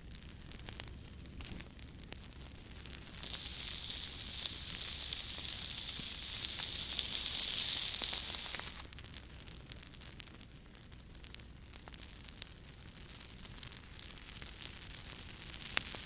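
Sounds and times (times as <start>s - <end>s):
fire crackling: 0.0s - 16.0s
meat sizzling over fire: 0.0s - 16.0s.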